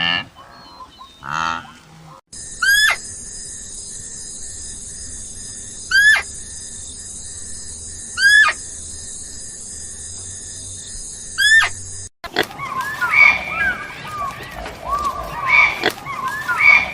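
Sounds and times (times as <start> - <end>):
animal calling: 0.0 - 3.1, 4.5 - 9.0, 11.3 - 16.9
steady high chirring: 2.3 - 16.9.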